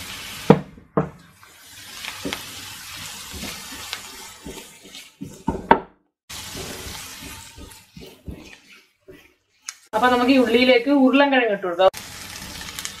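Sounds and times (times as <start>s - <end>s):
vegetables sizzling in oil: 0.0s - 5.7s, 6.3s - 13.0s
wooden spatula knocking a pan: 3.2s - 9.3s.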